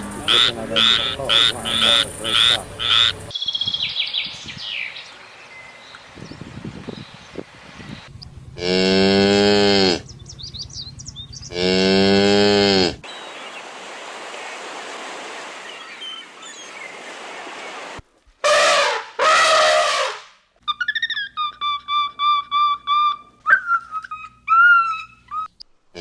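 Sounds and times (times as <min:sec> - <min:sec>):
steady background hiss: 0:00.0 - 0:03.4
cow mooing: 0:00.3 - 0:03.3, 0:08.3 - 0:10.6, 0:11.5 - 0:13.0.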